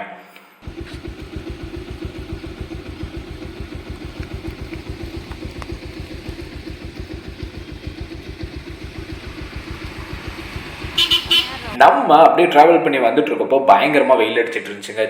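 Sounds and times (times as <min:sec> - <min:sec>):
motorcycle engine idling: 0:00.6 - 0:11.8.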